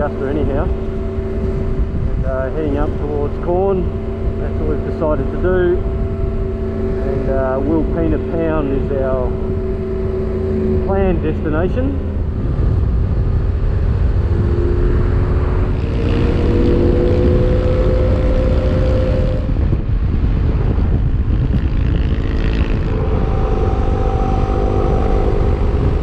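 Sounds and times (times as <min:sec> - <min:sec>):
motorcycle engine running: 0:00.0 - 0:26.0
wind rumble on microphone: 0:00.0 - 0:26.0.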